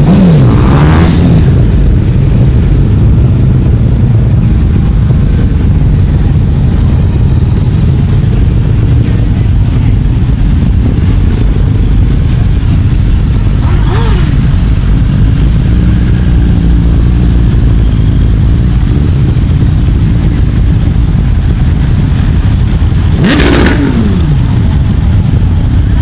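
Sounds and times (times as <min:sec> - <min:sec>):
motorcycles riding past: 0:12.7 - 0:17.7.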